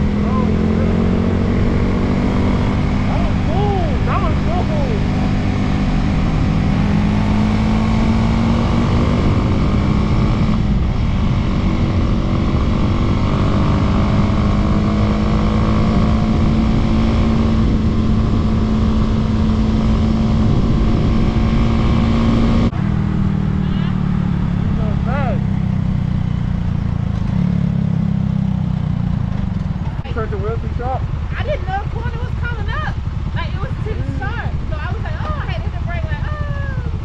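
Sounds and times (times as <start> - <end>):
wind rumble on microphone: 0.0 - 23.5
dirt bike engine at high revs: 0.0 - 37.0.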